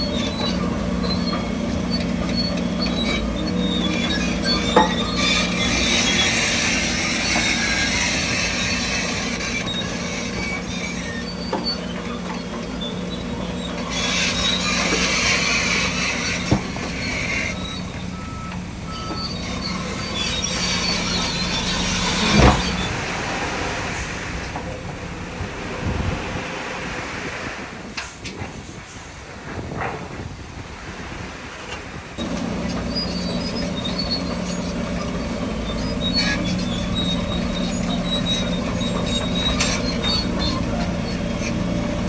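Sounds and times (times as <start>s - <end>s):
metallic clanking and squealing: 0.0s - 27.0s, 32.2s - 42.0s
heavy diesel machinery: 0.0s - 42.0s.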